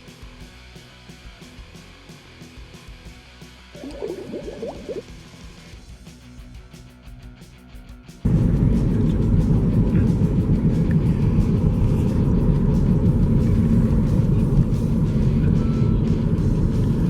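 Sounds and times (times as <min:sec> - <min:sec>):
wind buffeting microphone: 0:08.3 - 0:17.0.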